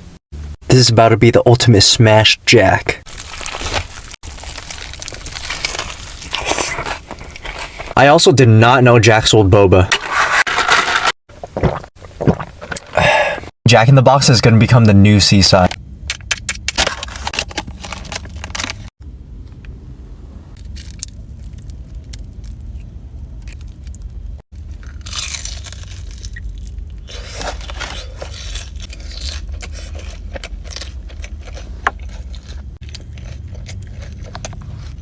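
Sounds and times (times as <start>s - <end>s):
crunchy bites and chewing: 3.1s - 8.0s, 20.5s - 35.0s
scraping and handling noises: 9.9s - 11.8s.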